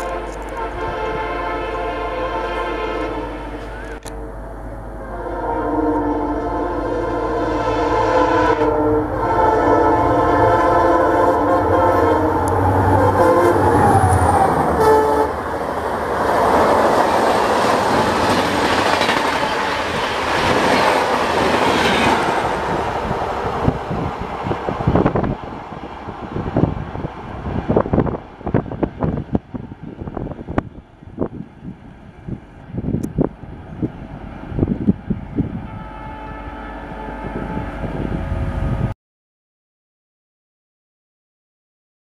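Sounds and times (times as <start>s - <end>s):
locomotive multi-tone horn: 0.0s - 15.6s, 35.3s - 38.9s
train rushing past: 0.0s - 38.9s
wheels clacking over rail joints: 15.3s - 22.4s.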